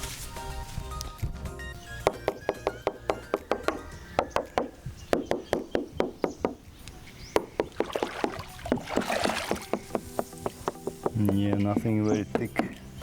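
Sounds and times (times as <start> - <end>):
hollow knocks on plywood hull: 7.4 - 11.8.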